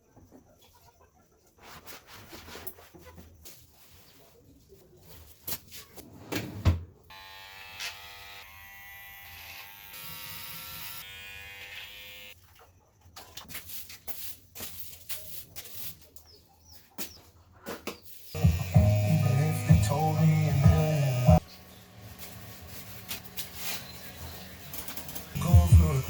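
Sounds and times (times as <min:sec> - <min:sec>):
electric hair clippers buzzing: 0:07.1 - 0:12.4, 0:18.4 - 0:21.4.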